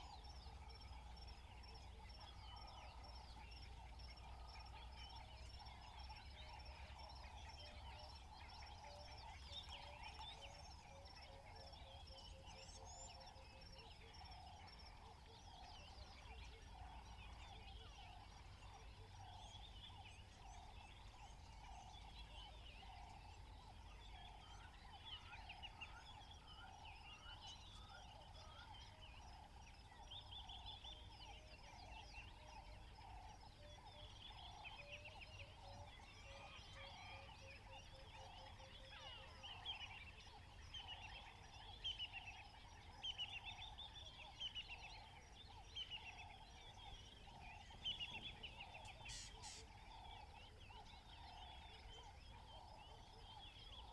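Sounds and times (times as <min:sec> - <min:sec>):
birds chirping and trilling: 0:38.4 - 0:53.9.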